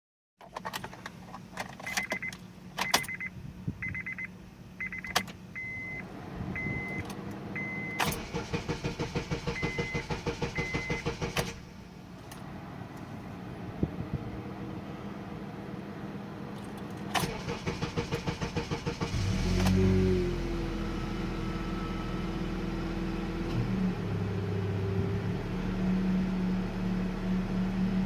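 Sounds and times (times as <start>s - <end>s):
dashboard warning chime beeping: 1.9s - 8.2s, 9.4s - 11.2s
starter cranking engine: 8.0s - 11.7s, 17.2s - 19.8s.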